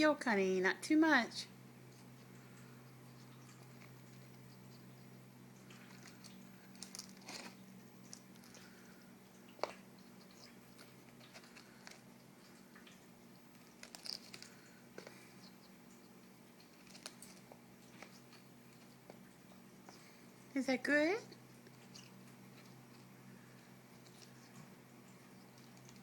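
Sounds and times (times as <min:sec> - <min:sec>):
beak clicking on eggshell: 0:12.8 - 0:19.3.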